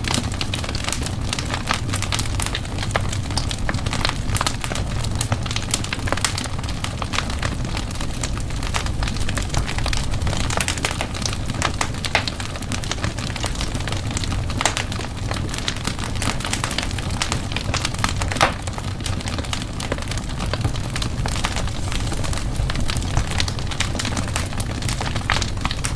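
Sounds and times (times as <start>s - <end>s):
low fire rumble: 0.0s - 25.9s
wood fire crackling and popping: 0.0s - 25.9s.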